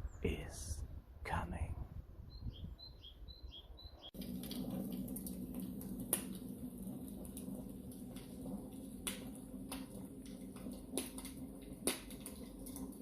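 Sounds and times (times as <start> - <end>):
sharp pops of fire: 4.1 - 13.0
wood fire crackling: 4.1 - 13.0.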